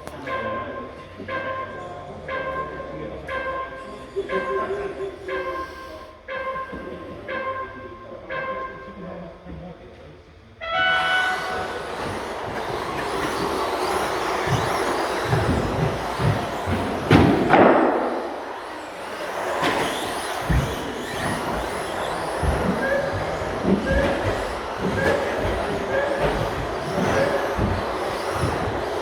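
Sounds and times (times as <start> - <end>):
toy truck motors and tyres: 2.6 - 7.1, 10.9 - 29.0.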